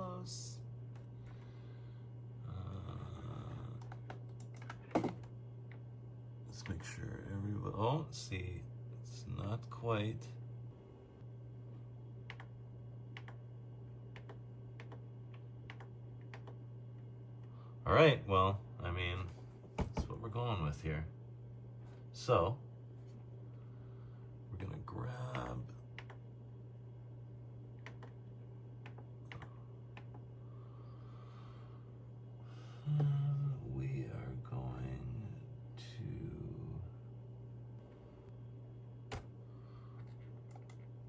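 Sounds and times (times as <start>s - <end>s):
steady low hum: 0.0s - 41.0s
keyboard and mouse clicks: 3.8s - 5.3s, 13.2s - 13.4s, 14.1s - 15.0s, 15.6s - 16.6s, 25.3s - 26.2s, 27.8s - 28.2s, 40.5s - 40.9s.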